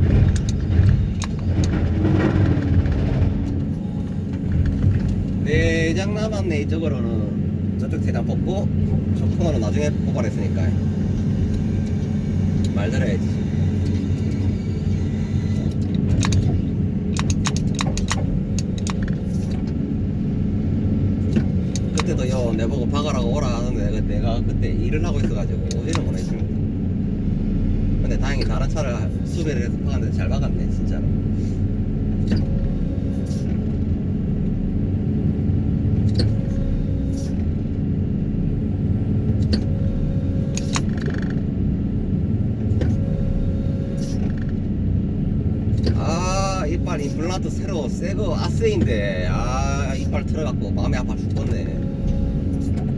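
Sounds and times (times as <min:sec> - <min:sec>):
sharp clicks and rattles: 0:00.0 - 0:05.6, 0:15.5 - 0:20.1, 0:21.2 - 0:23.7, 0:24.9 - 0:26.5
excavator diesel engine running: 0:00.0 - 0:52.9
sharp clicks: 0:15.6 - 0:19.6.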